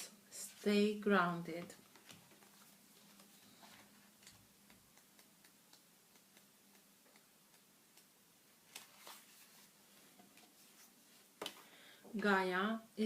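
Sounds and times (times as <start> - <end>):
faint regular ticking: 4.2 - 8.2.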